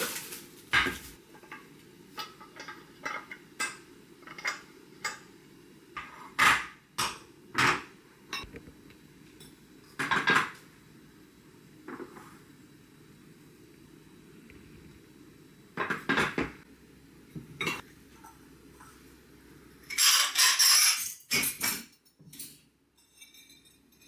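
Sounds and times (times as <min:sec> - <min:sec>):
dishes clinking and clattering: 0:00.0 - 0:05.3, 0:09.4 - 0:10.6, 0:15.8 - 0:16.6, 0:17.4 - 0:18.9, 0:19.8 - 0:24.0.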